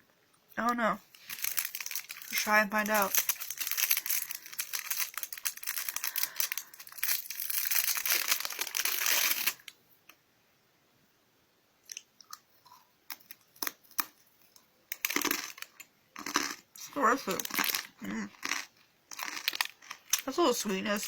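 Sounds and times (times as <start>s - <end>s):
plastic wrapper crinkling: 1.0s - 9.7s, 14.9s - 15.8s, 17.3s - 20.4s
crunchy snack being chewed: 1.1s - 9.7s, 11.9s - 14.2s, 14.9s - 20.3s.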